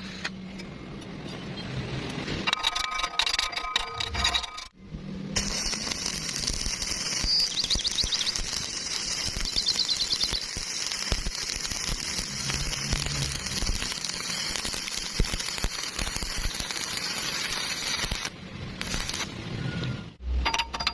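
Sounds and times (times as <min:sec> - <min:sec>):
welding arc crackling: 0:05.3 - 0:19.5.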